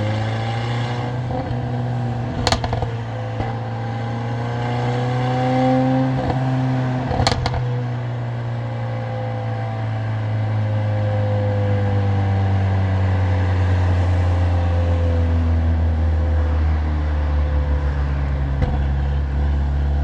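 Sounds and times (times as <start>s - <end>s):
car engine and loud exhaust cruising: 0.0s - 20.0s
sharp exhaust cracks: 1.2s - 3.6s, 7.1s - 7.7s.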